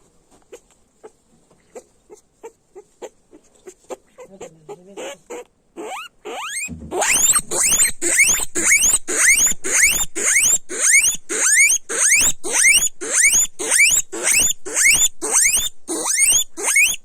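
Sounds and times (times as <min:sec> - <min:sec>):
guinea pigs squeaking: 0:00.5 - 0:17.0
guinea pigs whistling: 0:04.2 - 0:17.0.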